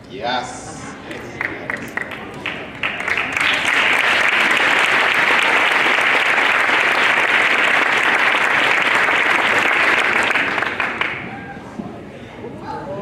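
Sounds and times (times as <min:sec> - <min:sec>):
audience applauding: 0:01.2 - 0:11.3.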